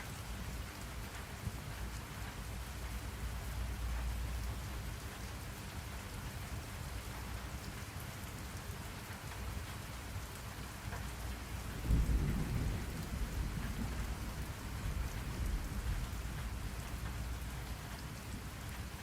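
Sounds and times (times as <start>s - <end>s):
steady rain: 0.0s - 19.0s
rolling thunder: 11.6s - 17.4s.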